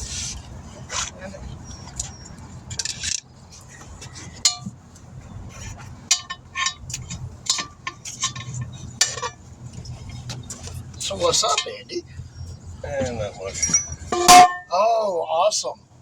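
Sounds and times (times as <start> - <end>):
low background rumble: 0.0 - 16.0
metal tools clinking: 0.9 - 4.7, 6.1 - 12.0, 13.1 - 14.7.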